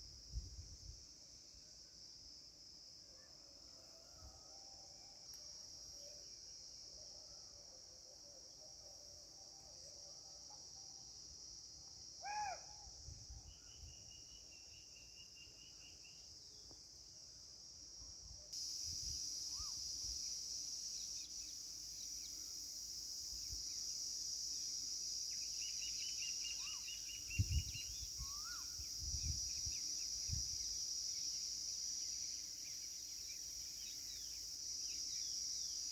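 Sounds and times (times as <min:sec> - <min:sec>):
high-pitched insect drone: 0:18.6 - 0:35.9.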